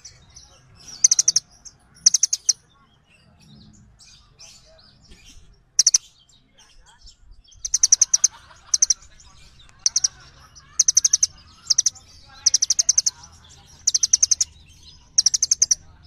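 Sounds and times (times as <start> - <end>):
songbird chip notes: 7.6 - 16.0.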